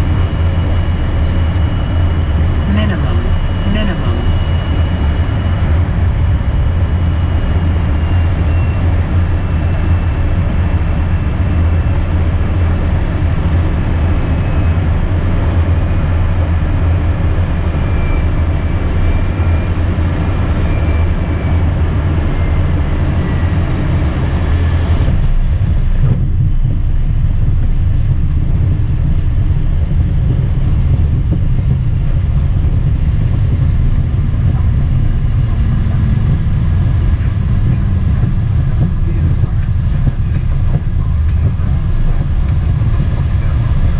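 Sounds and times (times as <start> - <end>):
jet cockpit rumble: 0.0 - 43.9
turbine whine: 0.0 - 43.9.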